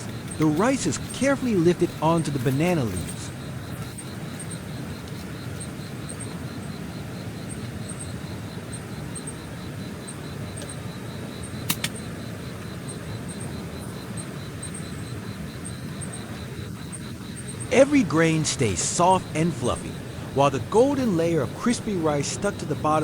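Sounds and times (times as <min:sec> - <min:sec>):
insects chirping: 0:00.0 - 0:23.0
sharp clicks: 0:11.4 - 0:12.2
mountain stream rushing: 0:17.7 - 0:23.0.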